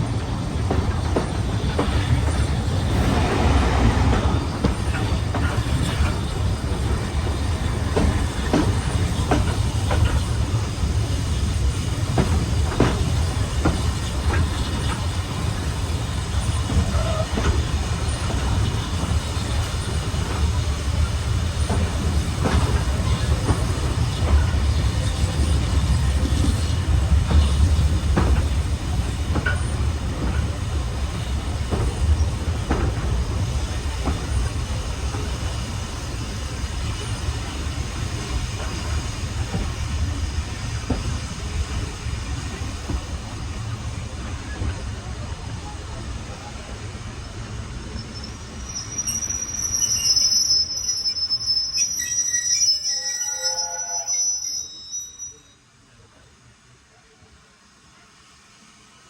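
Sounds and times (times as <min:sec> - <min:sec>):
train rumbling along track: 0:00.0 - 0:59.0
wheels clicking over rail joints: 0:21.4 - 0:35.5.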